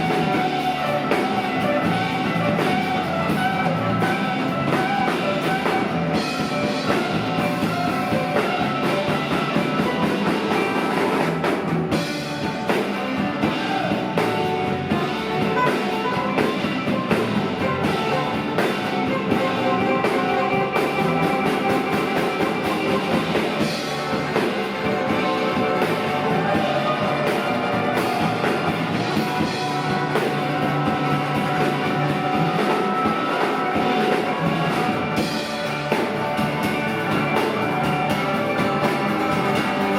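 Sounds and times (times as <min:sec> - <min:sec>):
drum kit: 0:00.0 - 0:39.9
electric guitars: 0:00.0 - 0:39.9.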